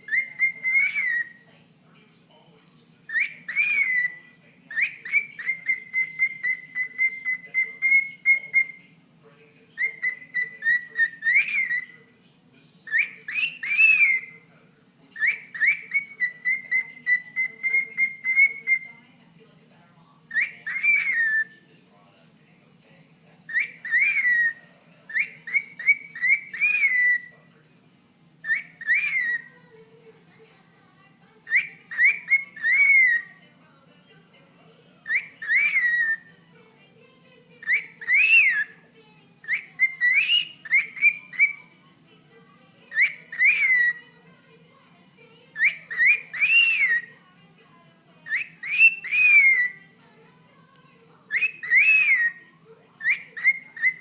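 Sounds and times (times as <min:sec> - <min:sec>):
cockatiel chattering and whistling: 0:00.0 - 0:01.5, 0:03.1 - 0:08.8, 0:09.8 - 0:12.0, 0:12.8 - 0:14.4, 0:15.2 - 0:18.9, 0:20.3 - 0:21.6, 0:23.5 - 0:27.3, 0:28.4 - 0:29.6, 0:31.4 - 0:33.3, 0:35.0 - 0:36.3, 0:37.6 - 0:38.8, 0:39.4 - 0:41.8, 0:42.9 - 0:44.2, 0:45.5 - 0:47.2, 0:48.2 - 0:49.8, 0:51.3 - 0:52.4, 0:53.0 - 0:54.0.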